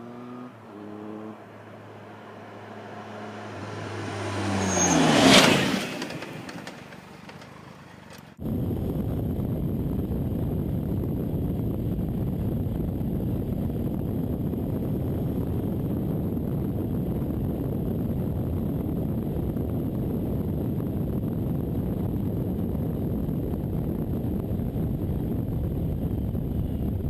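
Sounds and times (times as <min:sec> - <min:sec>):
wind buffeting microphone: 0:08.2 - 0:27.0.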